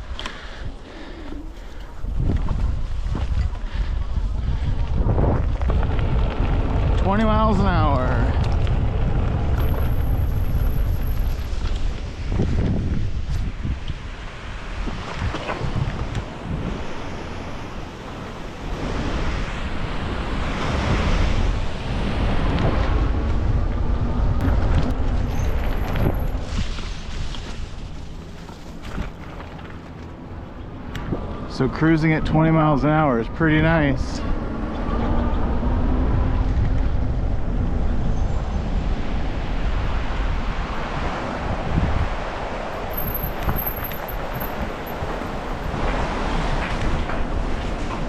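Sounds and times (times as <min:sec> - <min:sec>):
bike tyres rolling rumble: 0:00.0 - 0:31.6, 0:33.9 - 0:48.0
wind buffeting microphone: 0:00.0 - 0:48.0.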